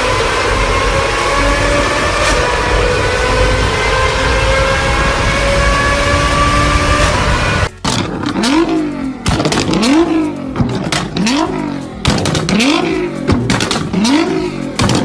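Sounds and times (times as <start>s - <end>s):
car engine revving: 0.0s - 15.0s
exhaust pops and crackles: 0.0s - 15.0s.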